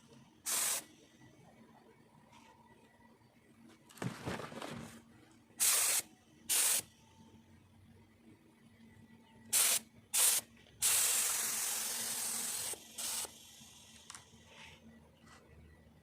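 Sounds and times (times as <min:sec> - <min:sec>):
paint spray gun hissing: 0:00.5 - 0:00.8, 0:05.6 - 0:06.8, 0:09.5 - 0:13.5.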